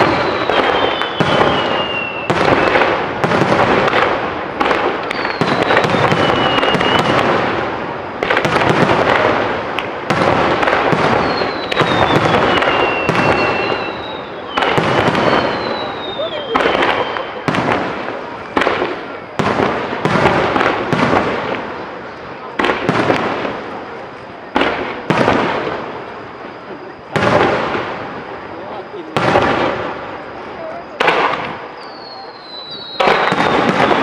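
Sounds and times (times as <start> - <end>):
firework whistles sliding down: 0.0 - 2.9, 5.0 - 7.2, 11.1 - 17.5, 30.2 - 34.0
firework shell bursts and crackling: 0.0 - 28.5, 29.1 - 34.0.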